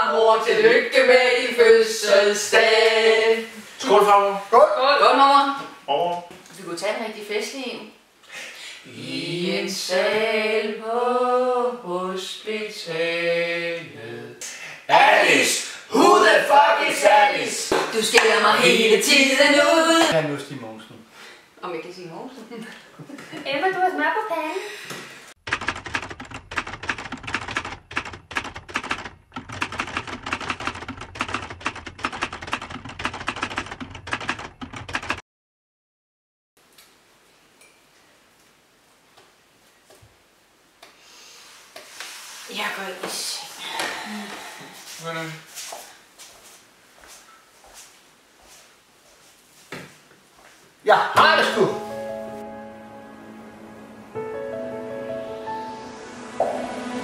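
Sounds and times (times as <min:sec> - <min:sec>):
person singing unaccompanied: 0:00.0 - 0:03.5, 0:08.9 - 0:20.1
typewriter keys clacking: 0:25.5 - 0:35.2.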